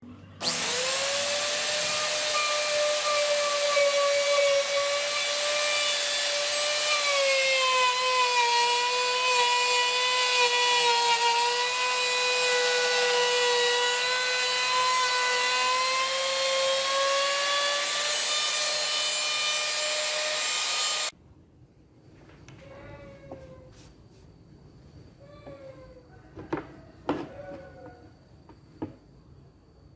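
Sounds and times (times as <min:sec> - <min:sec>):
wood-carving spindle whine: 0:00.4 - 0:21.2.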